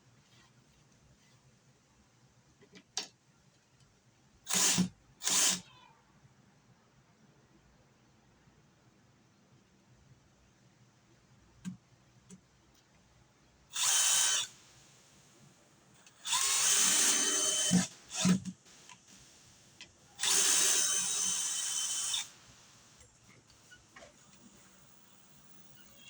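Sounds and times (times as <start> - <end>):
power drill running: 4.5 - 5.6, 13.7 - 15.1, 16.2 - 23.0.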